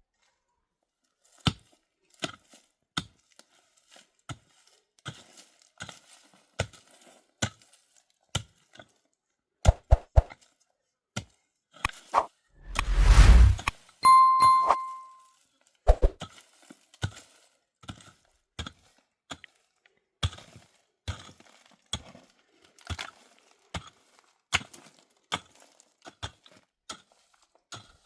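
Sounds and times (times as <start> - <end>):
low rumble: 12.7 - 13.7.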